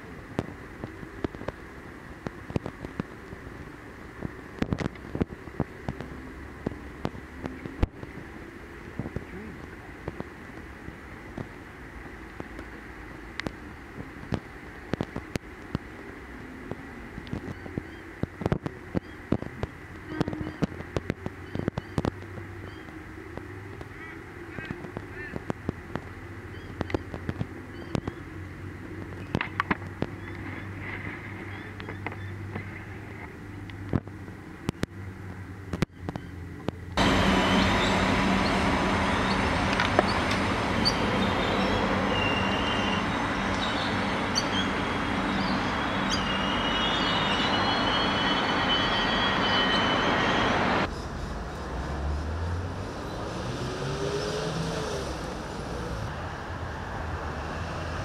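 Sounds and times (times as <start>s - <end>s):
railcar rumbling through station: 0.0s - 58.0s
railcar engine rising in pitch: 37.0s - 58.0s
high-pitched metallic squeals: 40.8s - 51.2s.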